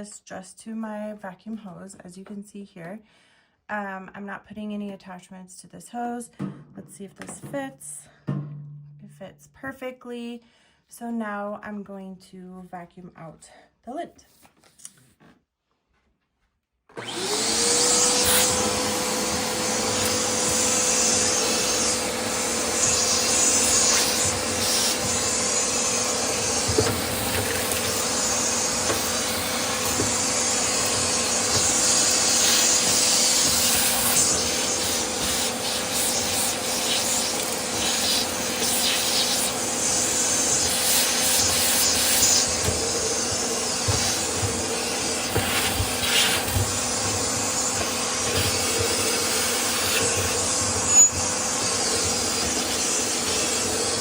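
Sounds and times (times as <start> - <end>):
vacuum cleaner motor whine: 16.9 - 54.0
rushing air through hose: 18.0 - 54.0.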